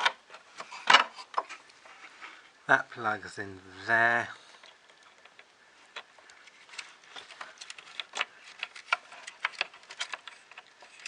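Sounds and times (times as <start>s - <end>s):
plastic parts clicking and tapping: 4.5s - 11.0s.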